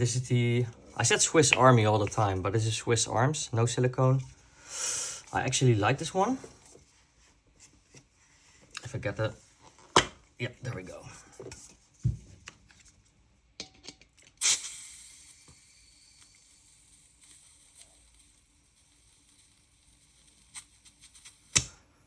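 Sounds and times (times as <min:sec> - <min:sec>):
gas hissing into magazine: 0:14.4 - 0:21.8.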